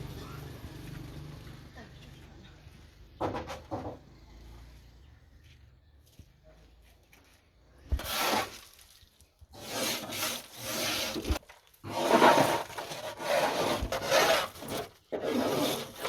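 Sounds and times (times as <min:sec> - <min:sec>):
hand saw cutting wood: 0:07.9 - 0:08.8, 0:09.5 - 0:16.0.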